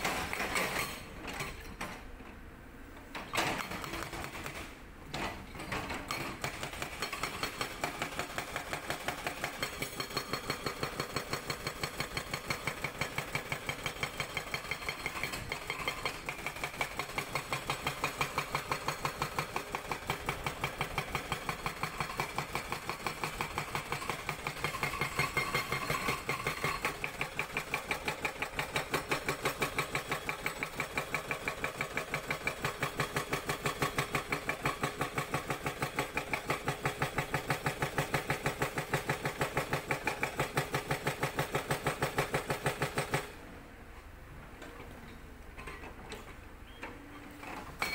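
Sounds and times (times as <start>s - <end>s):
hydraulic breaker hammering rock: 6.1s - 43.3s.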